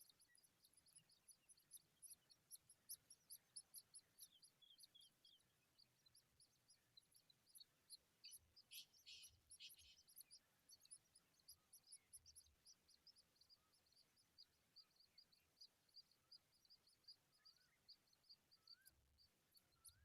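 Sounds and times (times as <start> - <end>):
high-pitched bird chirping: 8.3 - 12.5.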